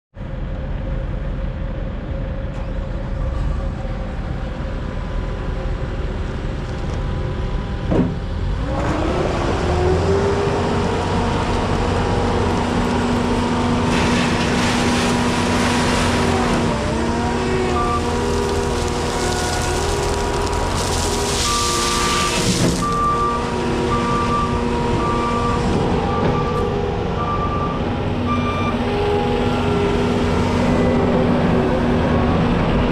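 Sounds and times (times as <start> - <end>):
diesel engine running: 0.2 - 32.9
engine revving with rising whine: 8.5 - 14.1.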